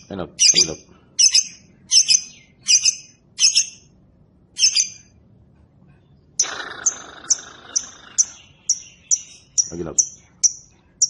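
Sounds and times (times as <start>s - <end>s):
bird chattering chirps: 0.0s - 3.8s, 4.6s - 5.1s, 6.4s - 11.0s
lovebird squawking: 0.0s - 3.8s, 4.6s - 5.0s, 6.4s - 10.6s.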